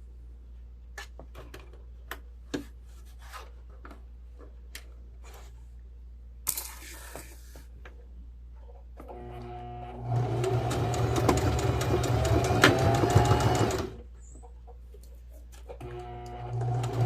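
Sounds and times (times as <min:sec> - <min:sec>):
electric sewing machine stitching: 0:09.1 - 0:14.0, 0:15.8 - 0:17.0.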